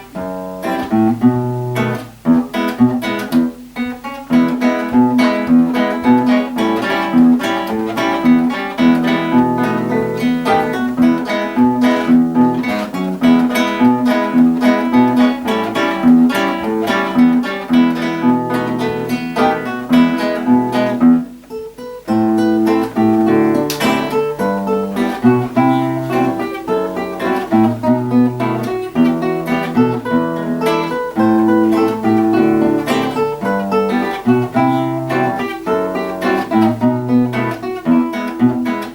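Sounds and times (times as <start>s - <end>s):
acoustic guitars duet: 0.0s - 38.9s.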